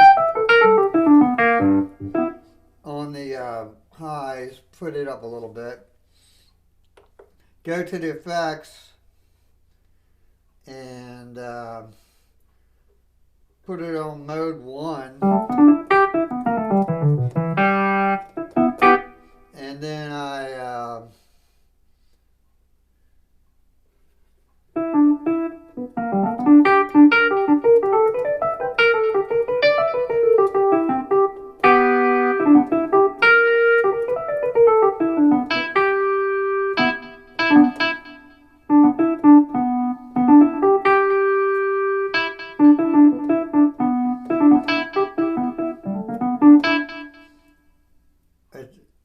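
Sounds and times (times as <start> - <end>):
electric piano chords: 0.0 - 2.6, 15.1 - 19.3, 24.8 - 47.4.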